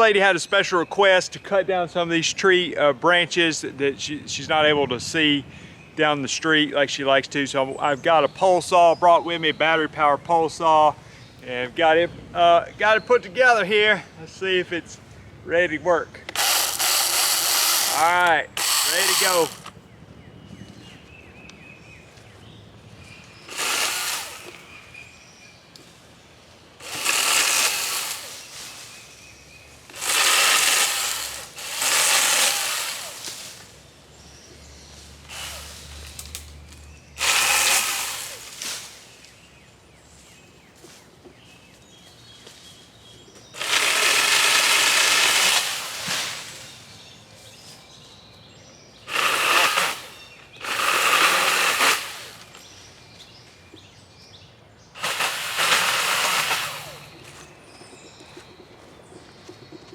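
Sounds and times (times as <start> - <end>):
pole saw cutting limbs: 16.2 - 19.8, 23.3 - 25.0, 26.8 - 33.9, 35.0 - 39.4, 43.5 - 47.8, 49.0 - 52.8, 55.0 - 57.6.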